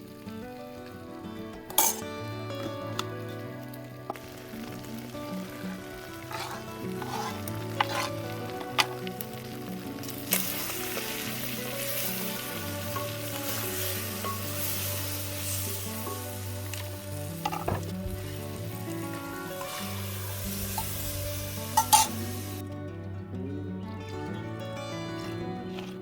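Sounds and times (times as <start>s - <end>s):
food sizzling in a pot: 0.0s - 22.6s
soft background music: 0.0s - 26.0s
spoon clinking on pot: 1.7s - 2.0s, 21.8s - 22.2s.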